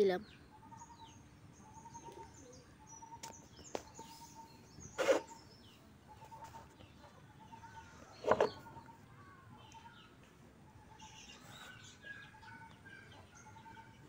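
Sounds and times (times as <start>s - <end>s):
birds chirping: 0.0s - 14.0s
repeated short bird call: 3.0s - 5.5s.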